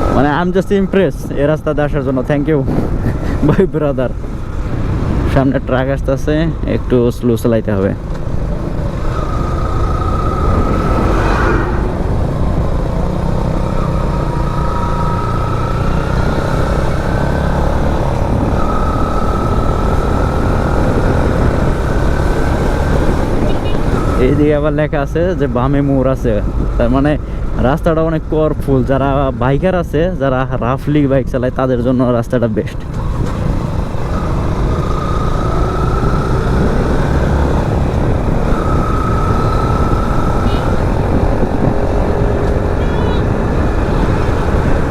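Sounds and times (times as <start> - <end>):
wind and road noise rumble: 0.0 - 44.9
motorcycle engine running: 7.9 - 24.7, 32.8 - 44.9.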